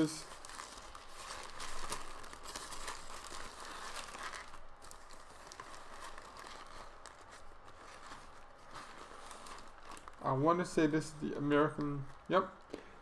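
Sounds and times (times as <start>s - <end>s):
paper wrapper crinkling: 0.0s - 12.8s.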